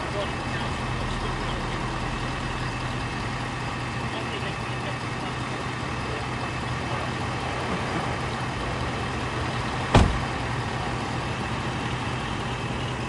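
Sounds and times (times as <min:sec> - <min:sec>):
vehicle engine idling: 0:00.0 - 0:13.0
sharp knock: 0:10.0 - 0:10.3.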